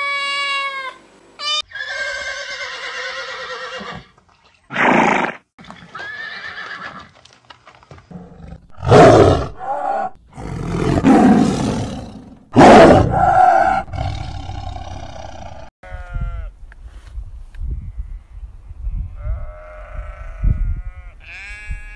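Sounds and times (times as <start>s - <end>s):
horse whinny: 1.7s - 4.1s, 4.7s - 7.1s
tiger roaring and growling: 8.1s - 15.7s.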